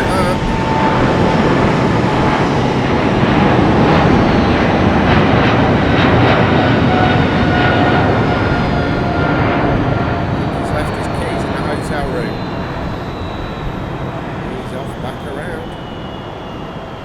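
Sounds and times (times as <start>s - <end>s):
loud jet roar: 0.0s - 13.2s, 13.9s - 15.9s
faint high jet whine: 0.0s - 17.0s.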